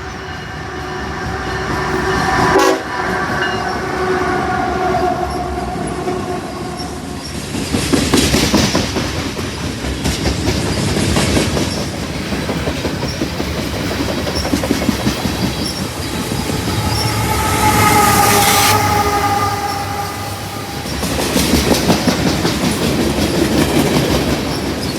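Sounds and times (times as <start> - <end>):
train horn: 0.0 - 7.3, 15.6 - 22.4
train wheels clattering over rail joints: 7.2 - 16.1, 21.0 - 24.9.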